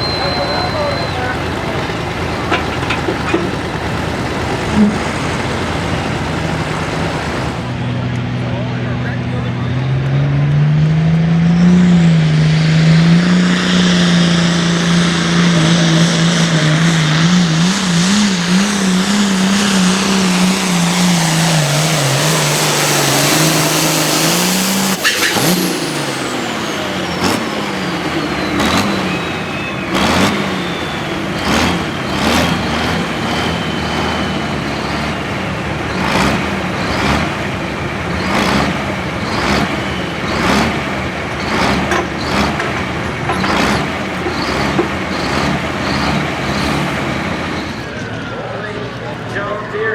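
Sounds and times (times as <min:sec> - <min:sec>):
turbo whistle: 0:00.0 - 0:01.5, 0:26.6 - 0:35.0
engine revving in blips: 0:00.0 - 0:49.5
diesel engine under load: 0:00.0 - 0:49.9.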